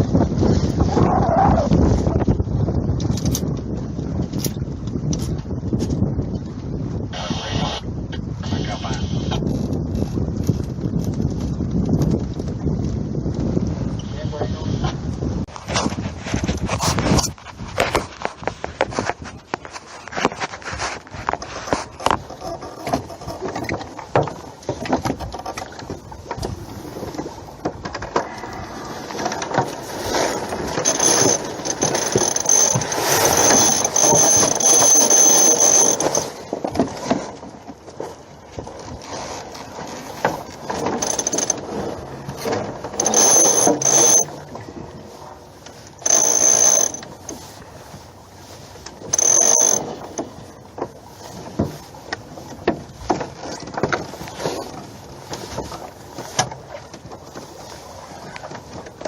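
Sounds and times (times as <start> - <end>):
winch pawls clicking: 27.9 - 36.4, 40.3 - 44.3, 45.7 - 47.5, 48.8 - 50.3.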